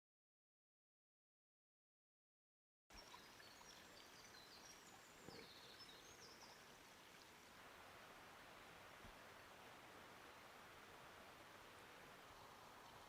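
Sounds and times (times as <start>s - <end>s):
flowing water: 2.9s - 13.0s.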